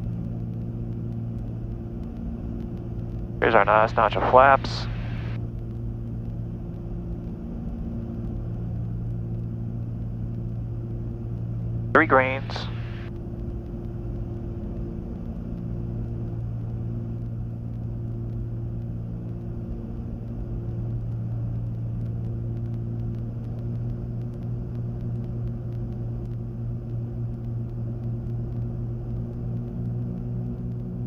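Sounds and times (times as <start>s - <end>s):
aircraft piston engines droning: 0.1s - 23.0s.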